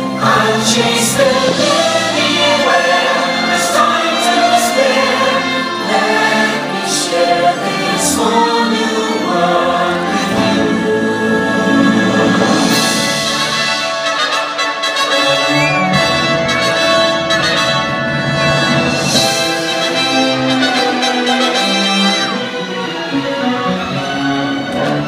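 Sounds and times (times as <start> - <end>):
choir singing: 0.0 - 25.0
orchestral music: 0.0 - 25.0.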